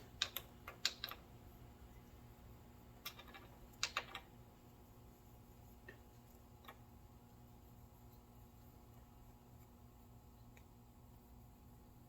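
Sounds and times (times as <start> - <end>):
small metal parts clicking: 0.0 - 1.3, 3.0 - 4.3.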